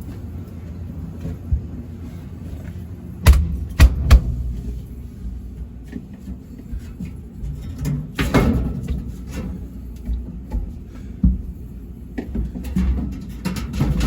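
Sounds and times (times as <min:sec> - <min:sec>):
sharp knocks: 0:03.2 - 0:04.5.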